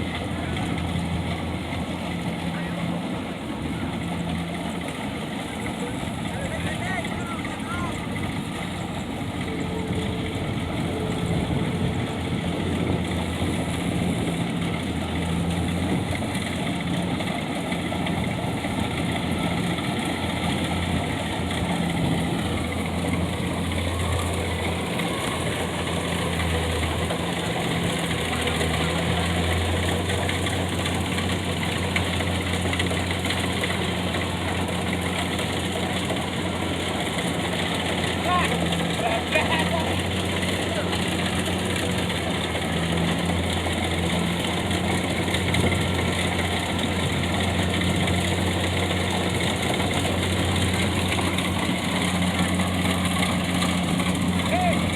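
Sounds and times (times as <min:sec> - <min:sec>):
tractor engine running: 0:00.0 - 0:54.9.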